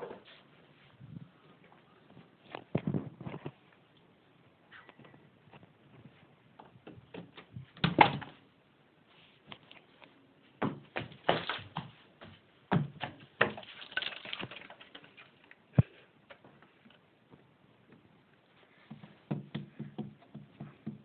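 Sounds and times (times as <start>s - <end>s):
knocks and thumps: 18.9s - 21.0s.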